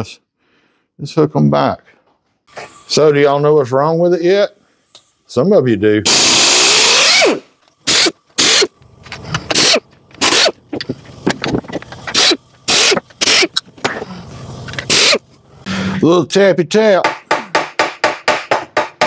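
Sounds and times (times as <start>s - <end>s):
air ratchet spinning screws: 6.0s - 15.3s.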